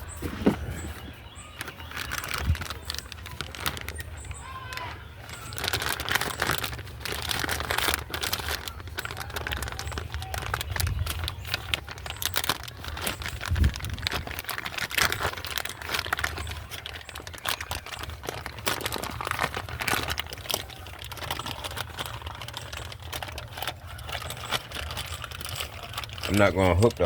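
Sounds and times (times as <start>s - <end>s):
hands handling car parts: 0.0s - 27.0s.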